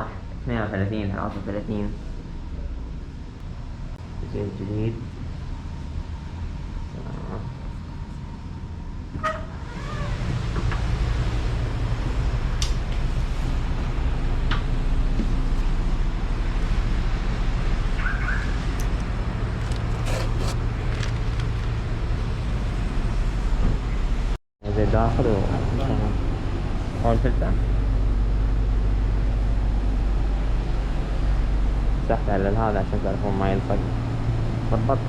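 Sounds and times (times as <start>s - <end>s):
truck engine idling: 10.9s - 24.1s.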